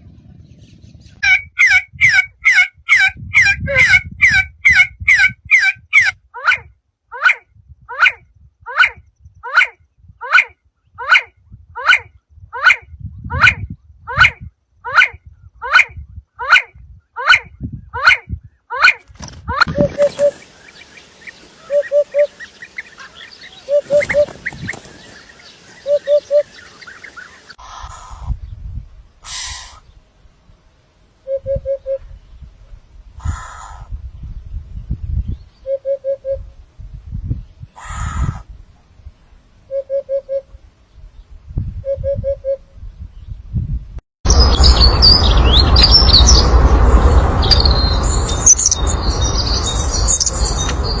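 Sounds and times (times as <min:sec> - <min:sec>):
high bird chirps: 0:19.6 - 0:27.6, 0:44.3 - 0:51.0
rustling bursts: 0:23.8 - 0:25.8
low rumble: 0:42.7 - 0:51.0.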